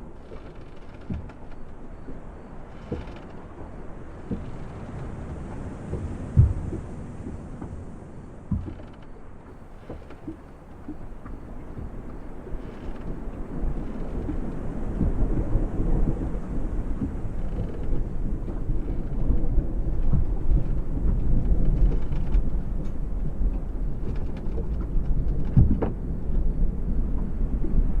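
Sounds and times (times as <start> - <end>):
water lapping against boat: 0.0 - 28.0
distant thunder rumbling: 4.2 - 7.7, 9.6 - 28.0.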